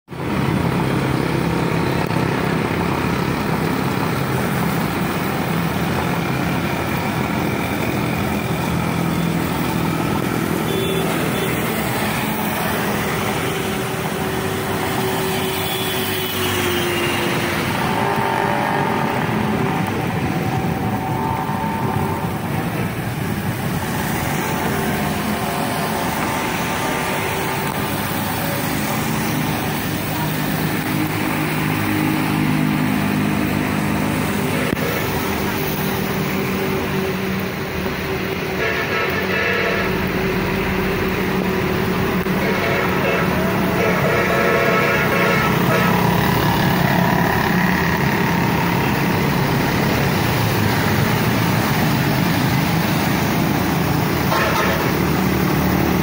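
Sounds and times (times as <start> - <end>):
road traffic passing: 0.1 - 56.0.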